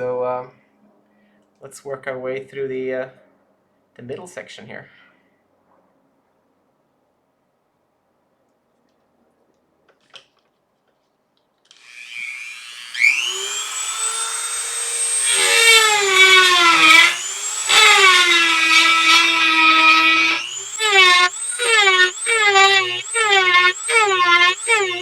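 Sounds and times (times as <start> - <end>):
rotary tool whining and grinding: 11.7 - 25.0.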